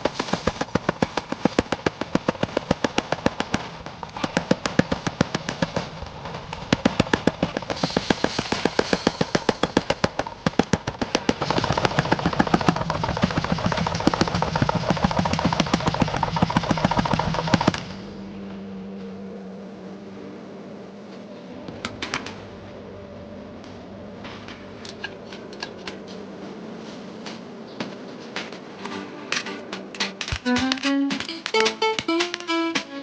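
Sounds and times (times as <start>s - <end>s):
machine hum: 0.0s - 33.0s.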